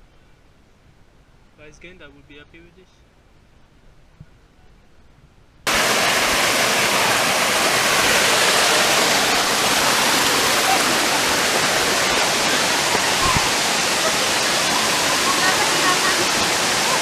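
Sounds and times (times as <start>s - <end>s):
waterfall rushing: 5.7s - 17.0s.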